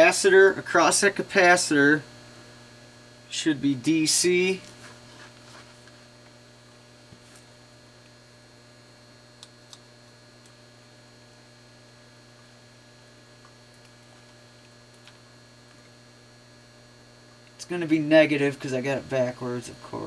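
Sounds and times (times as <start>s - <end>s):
low electrical mains hum: 0.0s - 20.0s.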